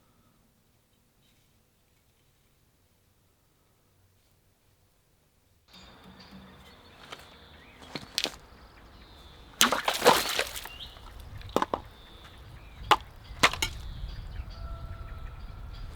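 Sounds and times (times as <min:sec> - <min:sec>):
wood splintering crackle: 0:06.6 - 0:08.6, 0:09.2 - 0:12.0, 0:12.9 - 0:13.8
wood chopping knocks: 0:06.9 - 0:08.5, 0:09.4 - 0:13.9.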